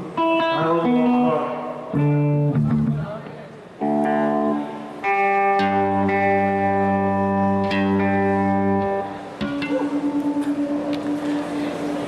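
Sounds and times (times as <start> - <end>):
electric guitar chords: 0.0 - 3.2, 3.8 - 12.0
pulsing note: 9.4 - 12.0.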